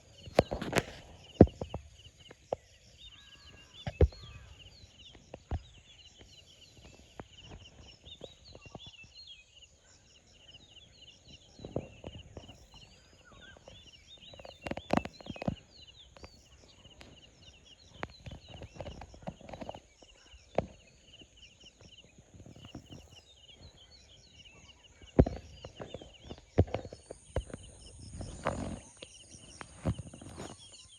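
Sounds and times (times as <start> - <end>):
birds chirping: 0.0 - 30.9
high-pitched insect whine: 25.3 - 30.9.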